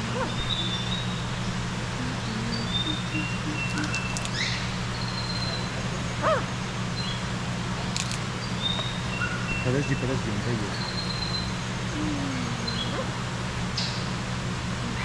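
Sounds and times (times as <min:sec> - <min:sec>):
birds whistling high notes: 0:00.0 - 0:01.3, 0:02.2 - 0:06.4
steady low hum: 0:00.0 - 0:15.0
sharp clicks: 0:02.8 - 0:04.5, 0:07.9 - 0:08.2.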